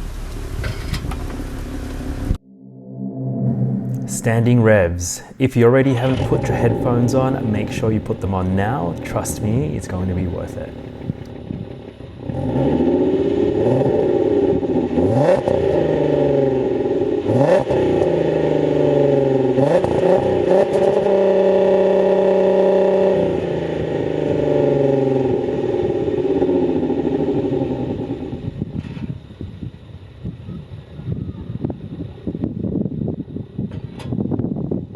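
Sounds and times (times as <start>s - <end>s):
car engine revving: 5.8s - 28.0s.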